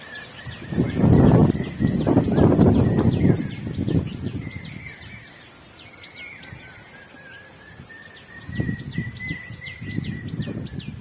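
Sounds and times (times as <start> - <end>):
birds chirping: 0.0 - 11.0
high insect tone: 0.0 - 11.0
wind buffeting microphone: 0.1 - 5.3, 7.6 - 11.0.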